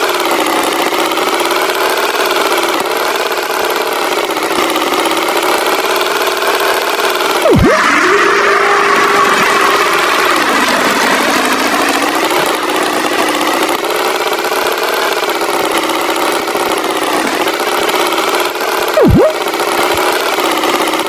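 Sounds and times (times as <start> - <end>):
tractor engine running: 0.0 - 21.0
swooping tone: 7.4 - 11.0, 19.0 - 19.4.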